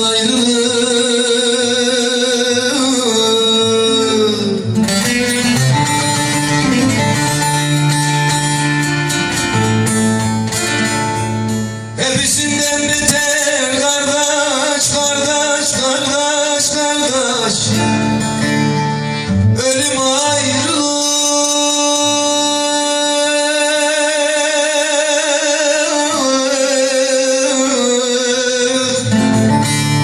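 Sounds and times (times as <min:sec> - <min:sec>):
lute and acoustic guitar folk music: 0:00.0 - 0:30.0
man singing melismatic phrase: 0:12.0 - 0:18.2, 0:19.6 - 0:29.2.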